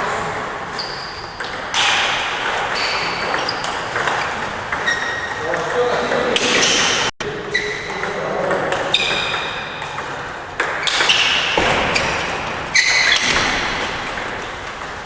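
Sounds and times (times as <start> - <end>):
large hall background noise: 0.0 - 15.0
table tennis ball pings: 7.9 - 11.6.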